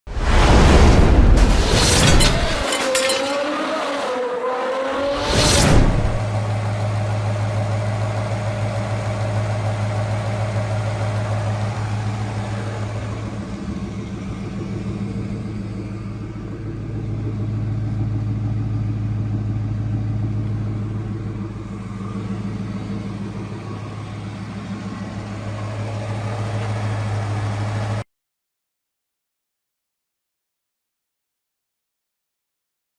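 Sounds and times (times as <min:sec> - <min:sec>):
car engine idling: 0:06.0 - 0:28.0.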